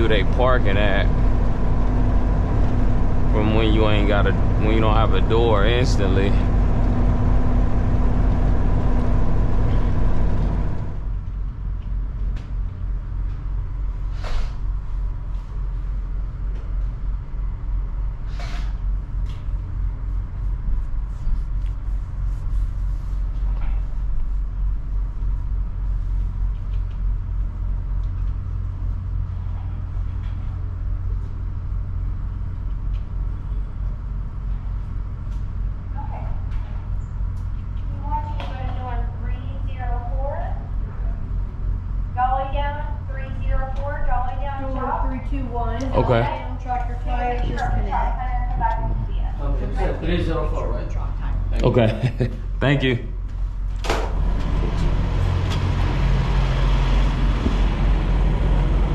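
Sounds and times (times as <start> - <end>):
diesel truck engine running: 0.0 - 11.2, 54.0 - 58.9
air brake hisses: 14.1 - 14.6, 18.3 - 18.8.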